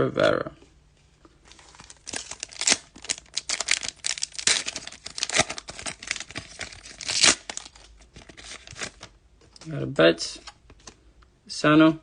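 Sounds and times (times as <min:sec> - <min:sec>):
card pack wrapper crinkling: 0:01.4 - 0:09.1.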